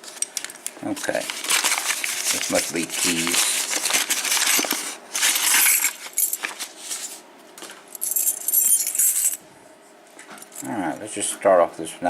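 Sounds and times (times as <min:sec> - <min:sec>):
metal keys jingling: 0:05.3 - 0:06.5, 0:08.0 - 0:09.4.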